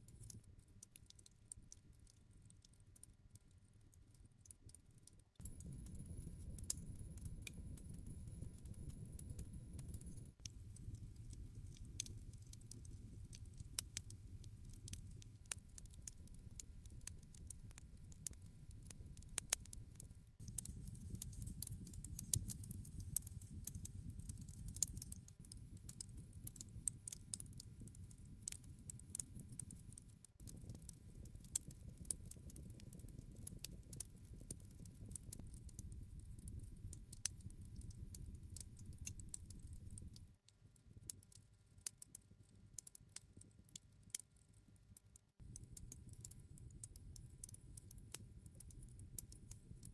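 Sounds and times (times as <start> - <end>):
fire crackling and popping: 4.6 - 44.6, 45.3 - 49.9
low rumble of flames: 5.4 - 19.8, 20.4 - 40.3.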